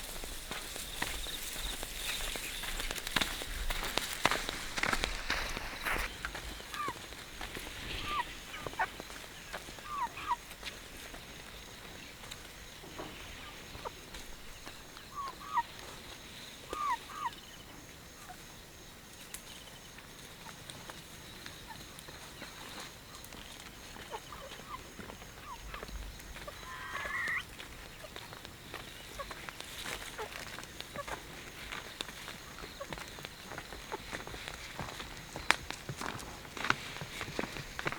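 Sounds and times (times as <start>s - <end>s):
light rustling or steps: 0.0s - 9.8s
chickens calling: 0.0s - 18.4s, 20.4s - 37.9s.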